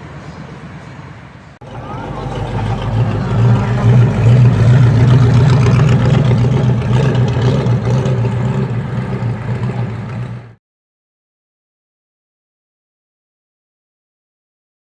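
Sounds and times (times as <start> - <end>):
car engine humming: 0.0 - 10.6.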